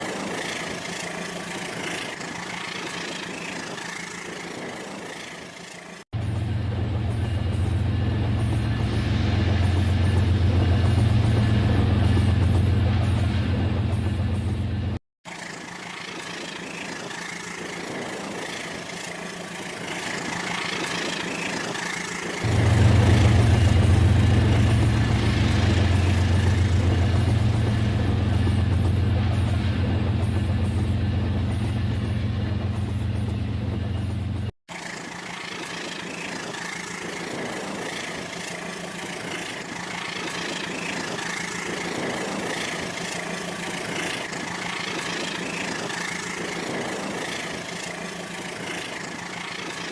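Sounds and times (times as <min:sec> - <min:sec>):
loud low hum: 0:22.4 - 0:29.1
toy train mechanical whir: 0:34.7 - 0:49.9.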